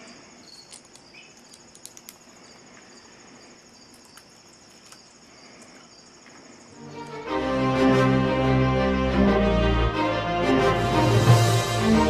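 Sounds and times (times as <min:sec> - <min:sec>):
crickets trilling: 0:00.0 - 0:07.4
faint clicks: 0:00.6 - 0:02.9.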